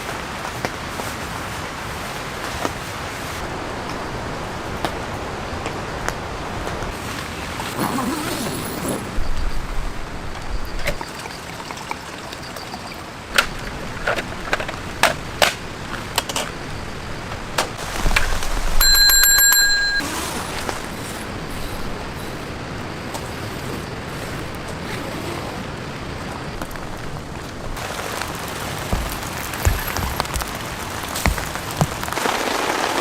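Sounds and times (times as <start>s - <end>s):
rain hiss: 0.0s - 19.1s, 20.0s - 33.0s
high bell-like ring: 18.8s - 20.1s
raindrops ticking: 26.6s - 33.0s.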